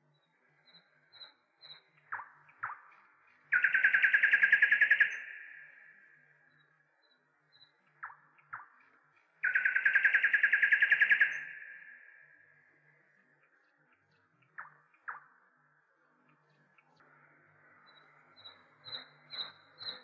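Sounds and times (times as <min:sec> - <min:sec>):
bird trilling: 0:09.4 - 0:11.7.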